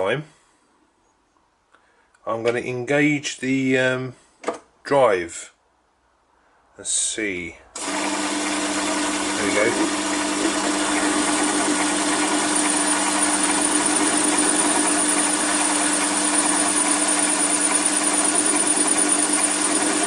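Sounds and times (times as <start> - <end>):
metal lathe running: 7.8 - 20.0.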